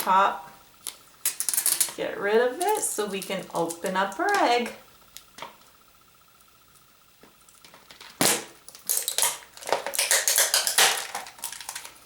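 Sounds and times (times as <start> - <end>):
tape peeling and tearing: 8.2 - 12.0
crackling and rustling: 8.8 - 12.0.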